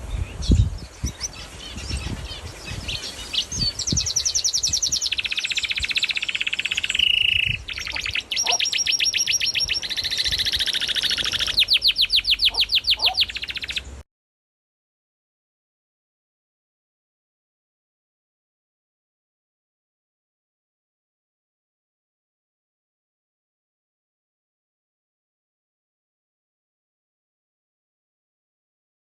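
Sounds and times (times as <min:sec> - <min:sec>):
pet birds trilling: 0:00.2 - 0:14.0.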